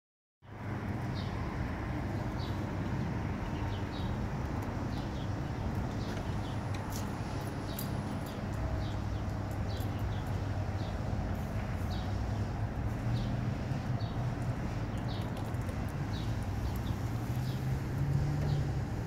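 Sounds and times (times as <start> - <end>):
small birds chirping: 0.5 - 19.0.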